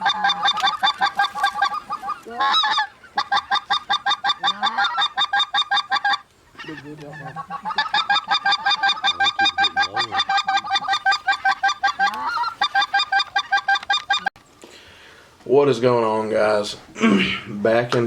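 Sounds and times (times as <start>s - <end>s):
goose honking: 0.0s - 14.3s
lower goose calls: 0.0s - 14.3s.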